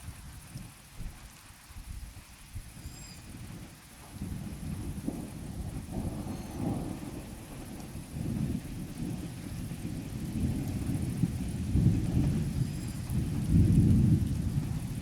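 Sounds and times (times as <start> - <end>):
rain falling: 3.3 - 15.0
thunder rumbling: 4.2 - 15.0.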